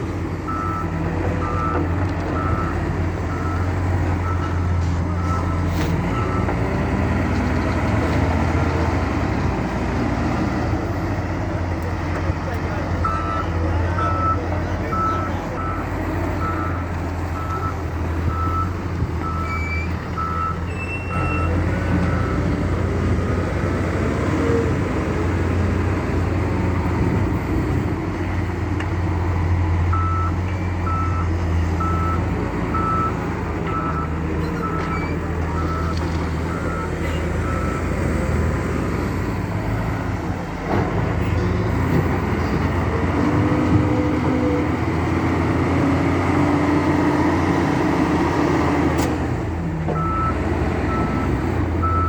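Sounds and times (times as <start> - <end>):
diesel machinery engine running: 0.0 - 52.0
reversing alarm beeping: 0.5 - 6.5, 13.0 - 15.8, 16.4 - 22.5, 29.9 - 37.9, 50.0 - 52.0.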